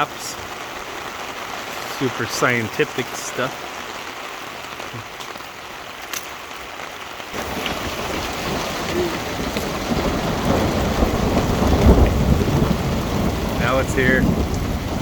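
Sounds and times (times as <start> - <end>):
heavy rain pouring: 0.0 - 15.0
deep thunder rumbling: 7.4 - 15.0.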